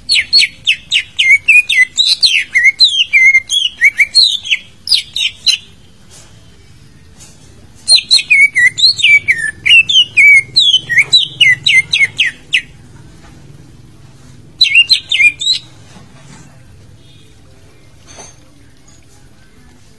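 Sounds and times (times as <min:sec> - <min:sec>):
bird singing sliding whistles: 0:00.1 - 0:05.6, 0:07.9 - 0:12.7, 0:14.6 - 0:15.7.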